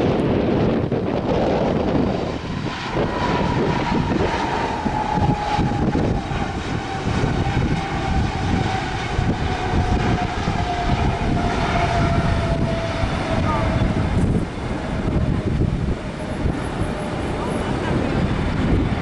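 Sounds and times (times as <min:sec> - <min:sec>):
jet engines whining: 0:00.0 - 0:19.0
wind buffeting microphone: 0:00.0 - 0:19.0.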